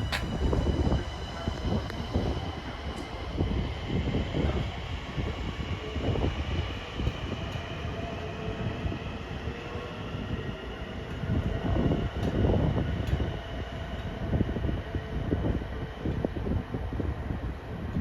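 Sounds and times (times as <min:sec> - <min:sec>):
train wheels rumbling on track: 0:00.0 - 0:18.0.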